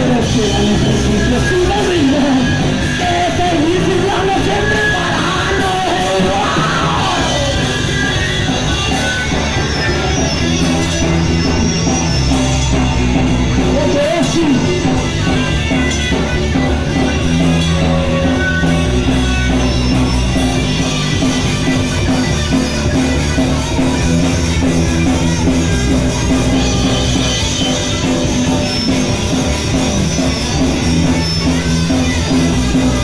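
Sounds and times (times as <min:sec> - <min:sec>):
punk rock band playing loudly: 0:00.0 - 0:33.0.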